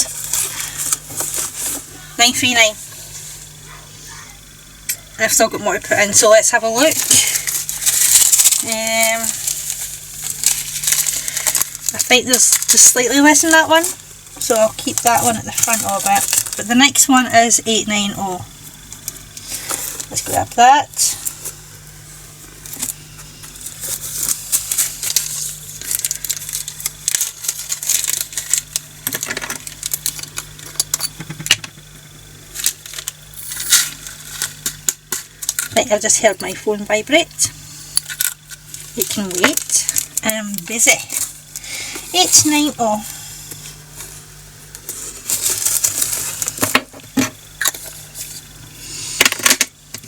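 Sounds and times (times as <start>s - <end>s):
plastic bags crinkling: 0.0s - 2.8s, 6.2s - 17.1s, 23.5s - 30.8s, 32.5s - 36.7s, 38.0s - 48.5s.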